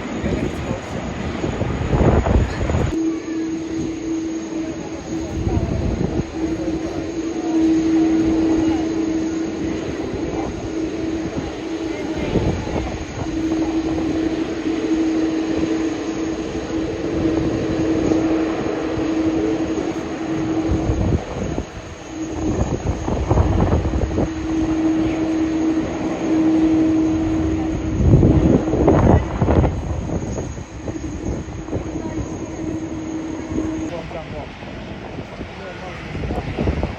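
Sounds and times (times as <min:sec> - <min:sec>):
faint voices: 0:00.0 - 0:36.9
jet engine roar: 0:00.0 - 0:36.9.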